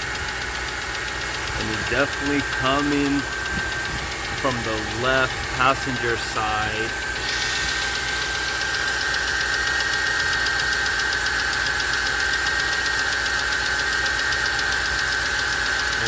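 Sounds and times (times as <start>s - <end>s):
engine idling: 0.0s - 16.0s
rapid engine knock: 0.0s - 16.0s
high whine: 1.2s - 8.6s.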